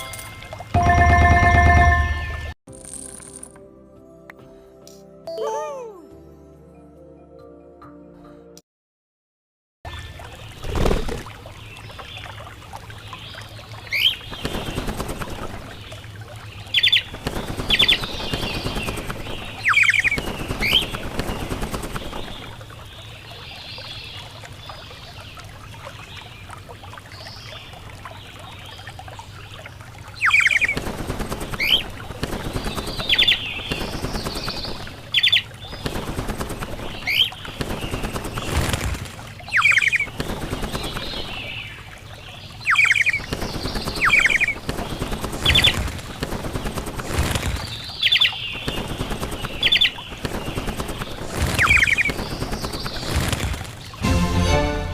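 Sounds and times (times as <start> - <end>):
birds giving sharp calls: 39.4 - 41.9, 42.5 - 53.9
rustling noise: 50.2 - 54.0.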